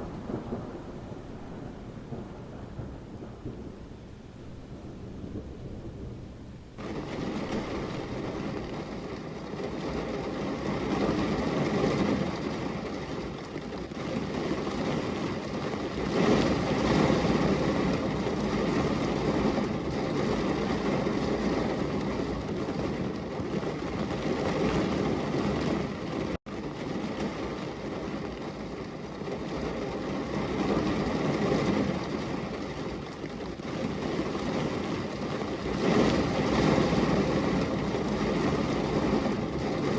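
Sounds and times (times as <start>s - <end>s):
rolling thunder: 0.0s - 33.0s, 33.6s - 39.9s
heavy rain: 0.0s - 39.9s.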